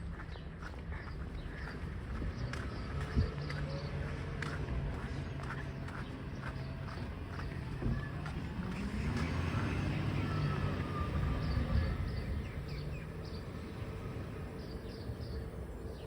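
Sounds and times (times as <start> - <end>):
garbage truck engine rumbling: 6.6 - 16.0
high chirps of birds or insects: 10.6 - 16.0.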